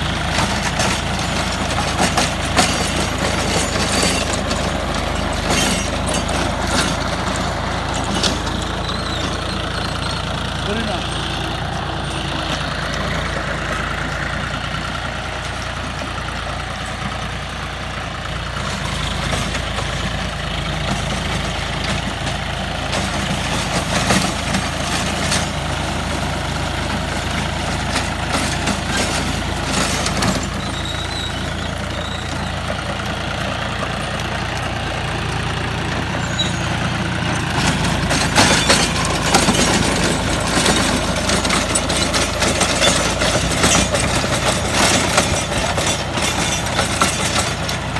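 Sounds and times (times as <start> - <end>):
sharp knocks and clatter: 0.0 - 14.4, 18.6 - 47.9
rotary tiller working: 0.0 - 47.9
tractor diesel engine running: 0.0 - 47.9.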